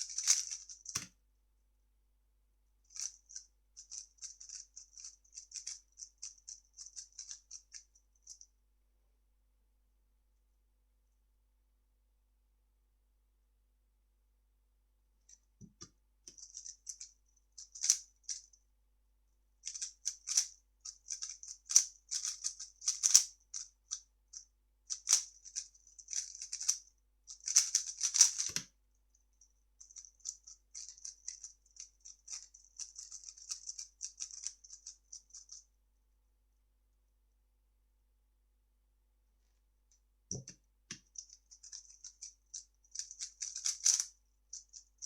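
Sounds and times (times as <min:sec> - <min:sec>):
puzzle cube plastic clicking: 0:42.9 - 0:44.1.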